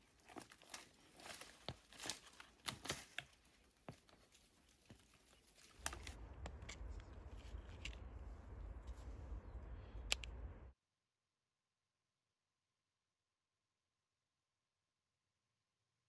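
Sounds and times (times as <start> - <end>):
low rumble with hiss: 5.8 - 10.7.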